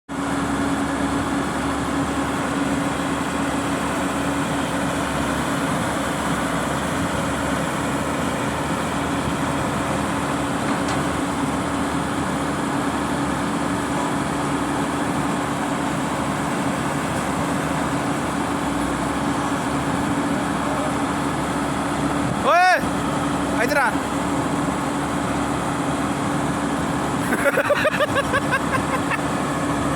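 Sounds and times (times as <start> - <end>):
diesel machinery droning: 0.1 - 29.9.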